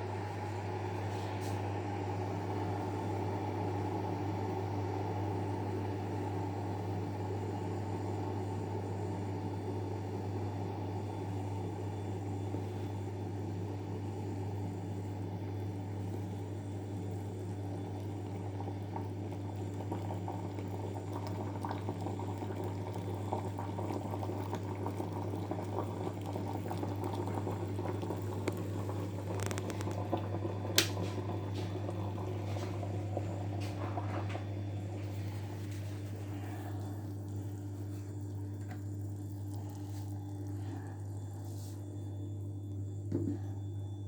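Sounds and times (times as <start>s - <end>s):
electric coffee pot humming: 0.0s - 44.0s
coffee bubbling: 15.1s - 43.7s
sharp ticks and pops: 29.4s - 30.0s.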